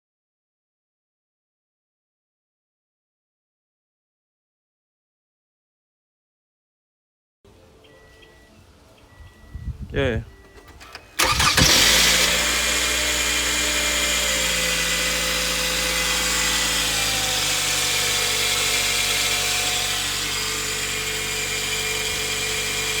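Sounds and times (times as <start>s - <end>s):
car engine starting and idling: 10.3s - 23.0s.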